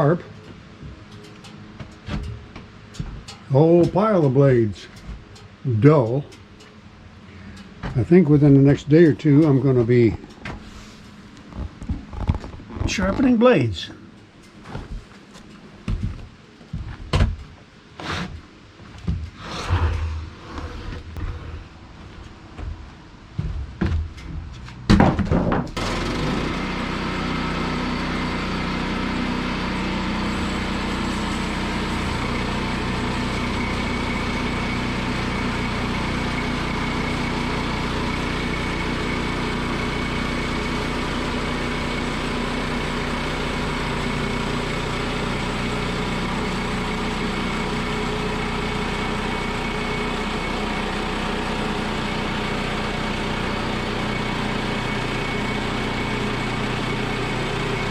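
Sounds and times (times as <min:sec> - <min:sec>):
knocks and clatters: 0:00.4 - 0:04.1
small gasoline engine running: 0:25.8 - 0:57.9.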